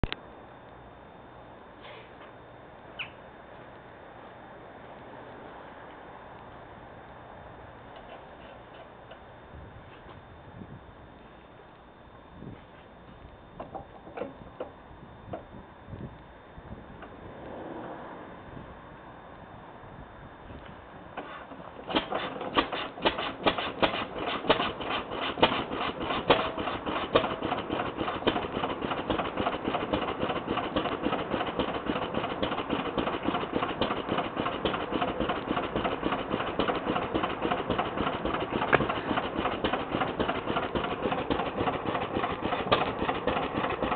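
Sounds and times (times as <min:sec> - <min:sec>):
stationary engine starting and running: 0:21.4 - 0:43.9.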